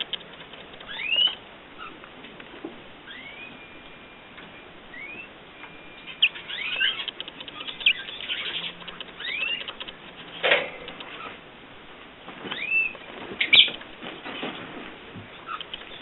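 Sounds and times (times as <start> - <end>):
light clicks and scrabbling: 0.0 - 1.4, 6.8 - 11.4
wings fluttering: 0.0 - 1.4, 6.1 - 11.4, 12.3 - 14.8
birds chirping: 0.0 - 11.5, 12.5 - 13.8, 15.3 - 16.0.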